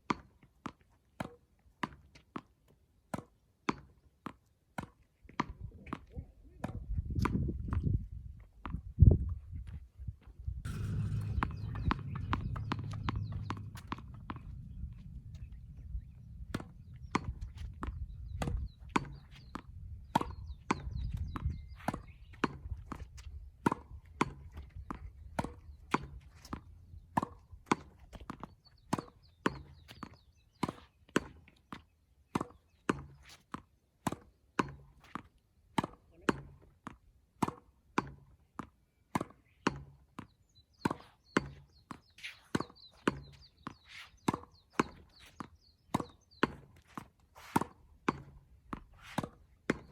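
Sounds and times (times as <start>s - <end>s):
low wind rumble on microphone: 5.6s - 27.6s
tennis balls struck by rackets: 10.7s - 23.1s, 25.3s - 31.4s, 32.3s - 33.4s, 34.0s - 38.4s, 39.1s - 49.9s.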